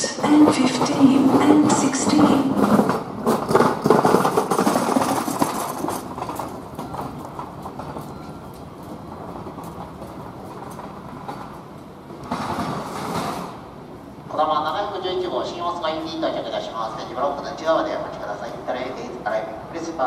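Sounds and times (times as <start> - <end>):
wheels clicking over rail joints: 0.0 - 13.7
train rolling into station: 0.0 - 20.0.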